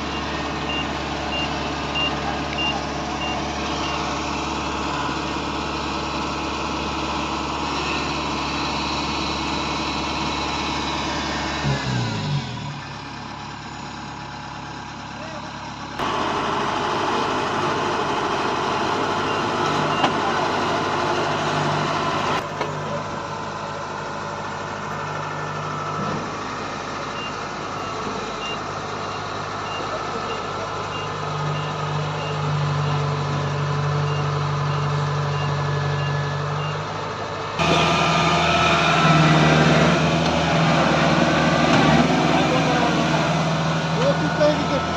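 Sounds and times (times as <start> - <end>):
combine harvester running: 0.0 - 44.9
high alarm beeps: 0.1 - 4.1.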